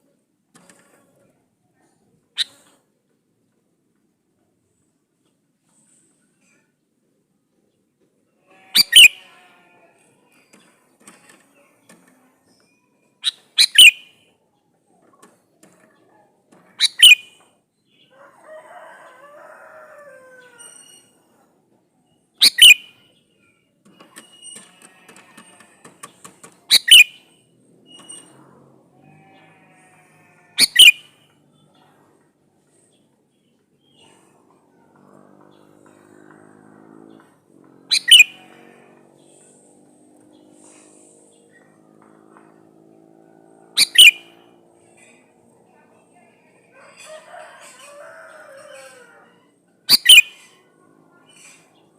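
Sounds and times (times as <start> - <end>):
bird calls: 2.4 - 2.7, 8.6 - 9.5, 11.9 - 14.2, 16.8 - 17.5, 22.4 - 23.5, 24.1 - 28.3, 30.6 - 31.8, 37.1 - 38.6, 43.7 - 44.5, 49.9 - 51.9
soft bird warbling: 8.7 - 9.2, 13.2 - 14.0, 16.8 - 17.2, 26.7 - 27.1, 30.6 - 31.0, 37.9 - 38.4, 43.8 - 44.3, 49.9 - 50.4.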